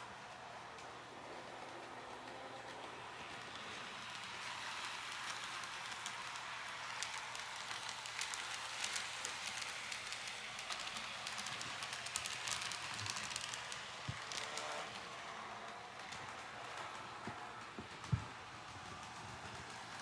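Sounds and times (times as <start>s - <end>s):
model train clicks and crackles: 0.0s - 20.0s
model train hiss: 2.6s - 15.0s.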